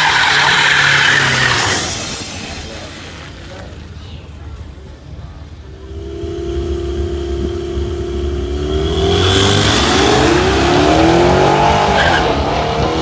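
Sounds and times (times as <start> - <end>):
truck engine revving and accelerating: 5.6 - 13.0.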